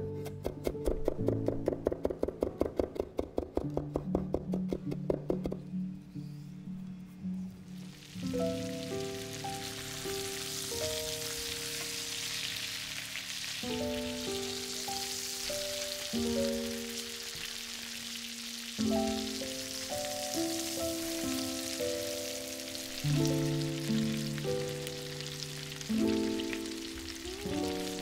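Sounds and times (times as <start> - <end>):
soft background music: 0.0 - 28.0
chicken sizzling in a pan: 7.8 - 28.0.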